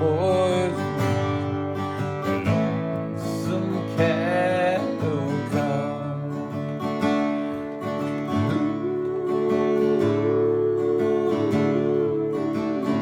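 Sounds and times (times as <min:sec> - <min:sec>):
acoustic guitar strumming: 0:00.0 - 0:13.0
long held melody note: 0:08.2 - 0:13.0.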